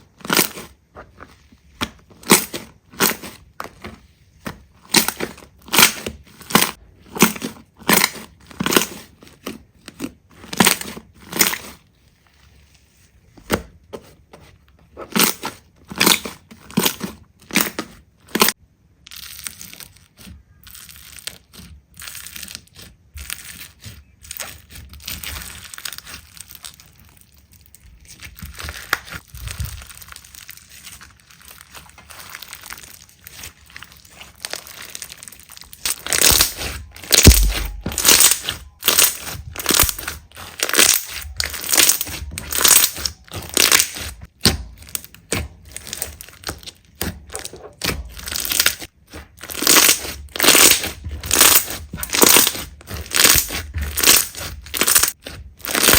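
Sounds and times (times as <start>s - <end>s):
slime crackling: 15.0s - 55.9s.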